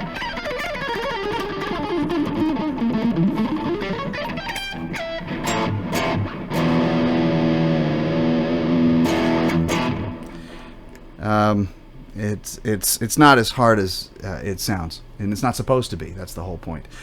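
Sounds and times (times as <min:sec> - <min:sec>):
electric guitar playing: 0:00.0 - 0:11.3.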